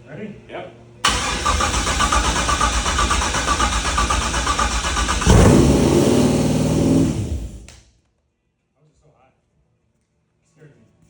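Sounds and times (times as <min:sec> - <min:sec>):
engine cranking on starter: 0:01.0 - 0:07.8
engine revving high: 0:01.1 - 0:07.8.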